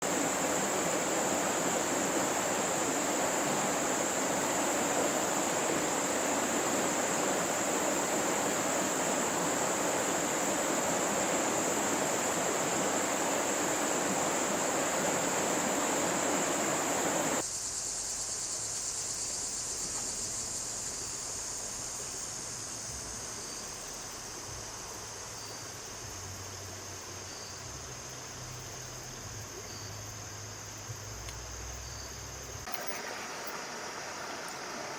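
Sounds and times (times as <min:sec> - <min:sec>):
flowing water rushing: 0:00.0 - 0:17.4, 0:32.6 - 0:34.9
insect chorus trilling: 0:00.0 - 0:34.9.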